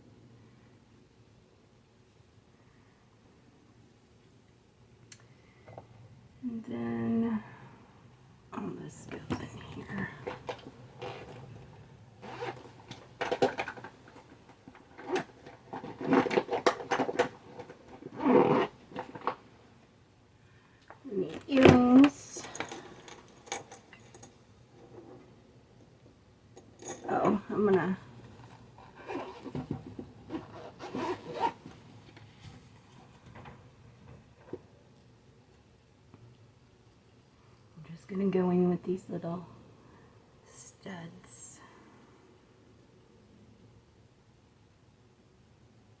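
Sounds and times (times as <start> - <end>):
scraping and rustling handling: 9.0 - 19.8, 26.6 - 34.7
makeup items clicking and rustling: 9.2 - 19.4, 21.2 - 25.0
zipper pulled shut: 12.2 - 13.6, 15.0 - 19.4, 28.4 - 29.7, 30.3 - 31.7.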